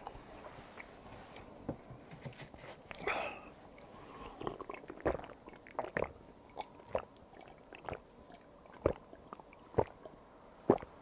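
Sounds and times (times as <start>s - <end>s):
person chewing: 3.8s - 8.0s.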